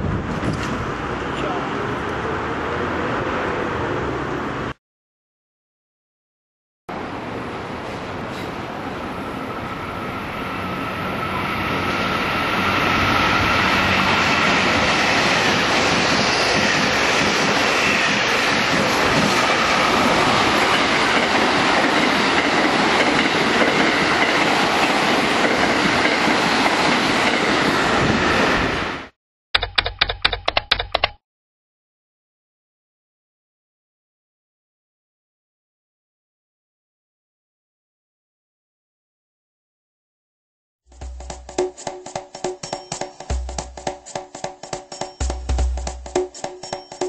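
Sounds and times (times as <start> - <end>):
short sharp pitched clicks: 29.6 - 31.2.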